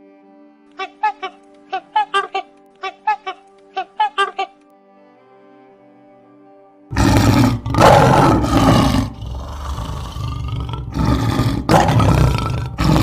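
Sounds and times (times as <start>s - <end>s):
big cat roaring: 6.9s - 13.0s.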